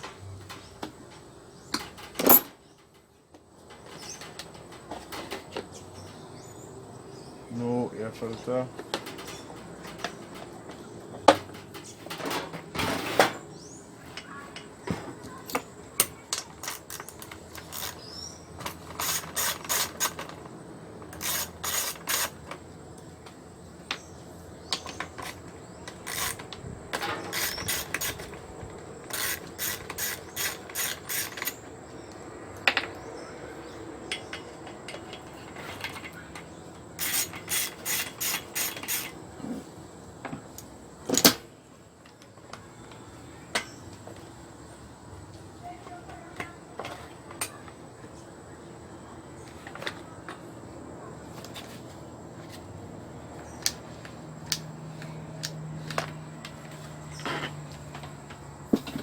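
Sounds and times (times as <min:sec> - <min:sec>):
ratchet wrench clicking: 0:16.4 - 0:20.3, 0:21.2 - 0:22.5, 0:26.0 - 0:26.4, 0:27.3 - 0:28.4, 0:29.1 - 0:31.6, 0:37.0 - 0:39.2
tool handling knocks: 0:58.7 - 0:59.0.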